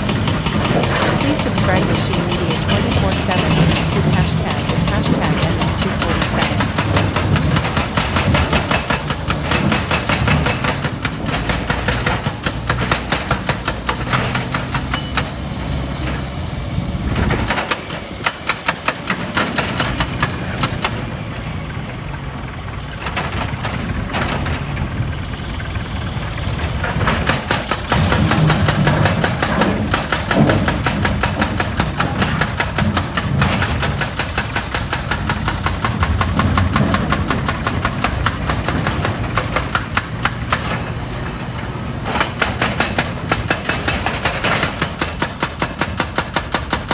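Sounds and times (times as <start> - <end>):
rock crusher clattering: 0.0 - 15.5, 26.4 - 46.9
engine running: 0.0 - 46.9.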